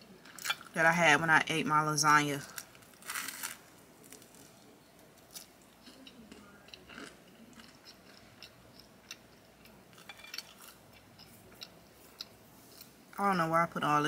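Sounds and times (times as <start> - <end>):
chewing crunchy toast: 0.1 - 0.7, 2.6 - 13.0.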